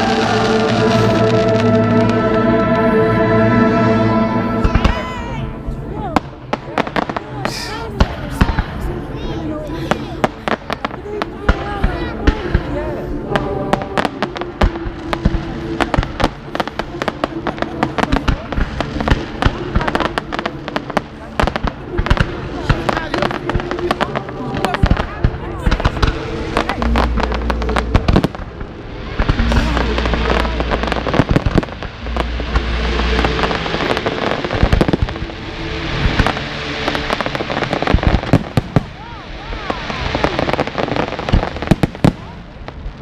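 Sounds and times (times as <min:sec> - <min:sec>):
fireworks cracking and crackling: 0:00.0 - 0:03.0, 0:06.0 - 0:43.0
heavy firework bangs: 0:13.4 - 0:43.0.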